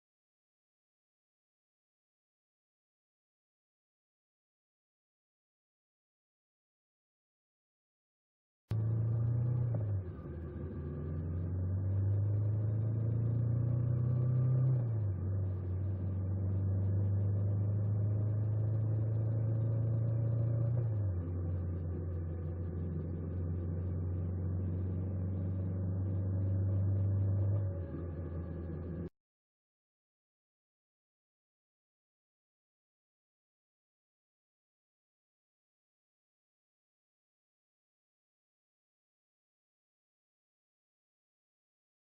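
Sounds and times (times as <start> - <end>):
motorcycle engine running: 15.0 - 29.1.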